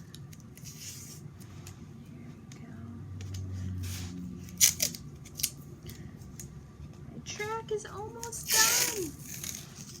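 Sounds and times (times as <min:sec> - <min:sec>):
tape crackling and rustling: 0:03.2 - 0:06.5, 0:08.2 - 0:10.0
tape tearing: 0:04.5 - 0:05.6, 0:08.4 - 0:10.0.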